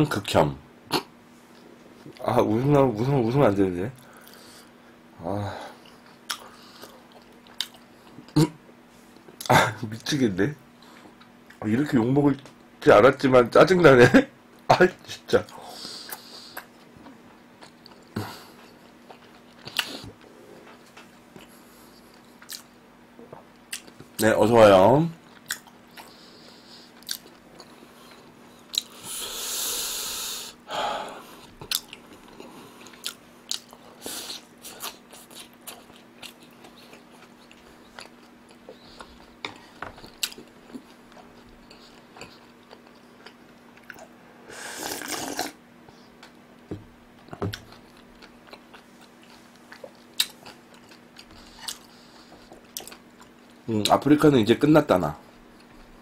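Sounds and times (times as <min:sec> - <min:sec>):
faint steady hum: 0:00.0 - 0:56.0
man chewing with wet clicks: 0:05.8 - 0:08.4, 0:15.4 - 0:22.8, 0:23.4 - 0:24.2, 0:25.2 - 0:29.0, 0:31.4 - 0:44.2, 0:44.8 - 0:54.0.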